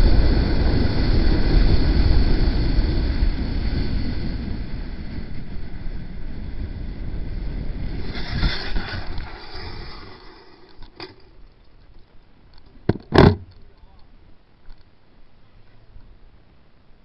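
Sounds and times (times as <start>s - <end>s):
brief thump: 12.8s - 13.6s.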